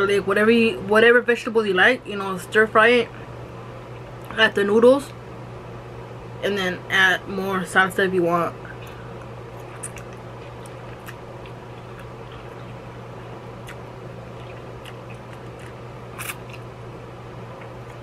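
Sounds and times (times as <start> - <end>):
electric fan humming: 0.0 - 18.0
chewing and mouth clicks: 8.8 - 12.8, 13.6 - 16.7, 17.6 - 18.0.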